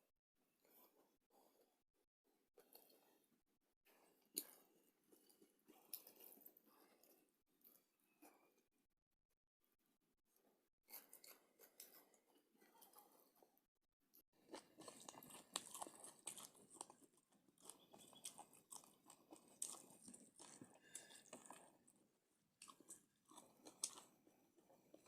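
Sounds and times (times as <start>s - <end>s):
chewing and biting food: 4.1s - 7.2s, 14.4s - 25.0s.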